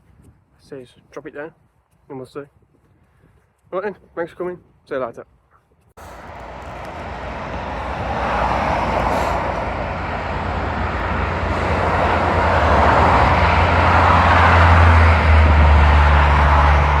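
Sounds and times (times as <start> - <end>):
low engine hum: 6.0 - 17.0
tyres rushing on road: 6.0 - 17.0.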